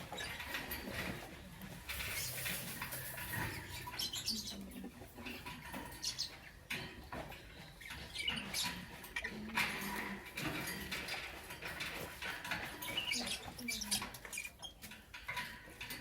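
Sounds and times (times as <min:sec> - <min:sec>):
lovebirds chirping: 0:01.9 - 0:06.6, 0:07.4 - 0:10.1, 0:12.7 - 0:14.9.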